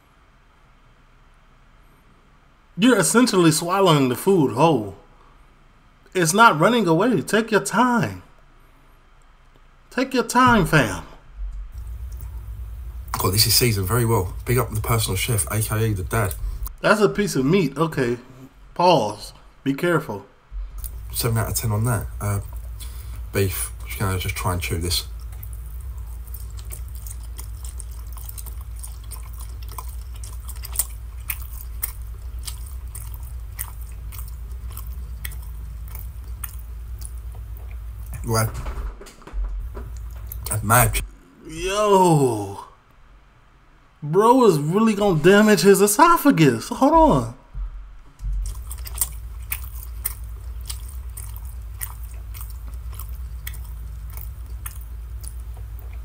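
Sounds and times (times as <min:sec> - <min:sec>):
steady low hum: 0:00.0 - 0:56.0
person chewing food: 0:11.5 - 0:16.8, 0:20.6 - 0:38.2, 0:39.6 - 0:41.1, 0:47.6 - 0:56.0.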